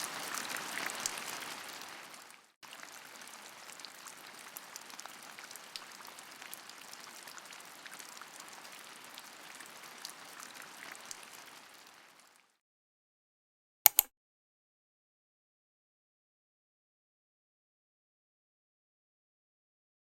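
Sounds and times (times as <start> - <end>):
rain falling: 0.0 - 12.6.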